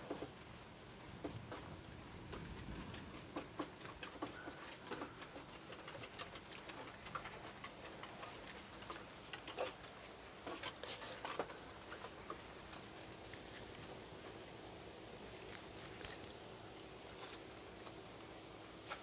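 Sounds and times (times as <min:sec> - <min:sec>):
rain dripping and pattering: 0:00.0 - 0:10.1
soft steady hush: 0:00.0 - 0:19.0.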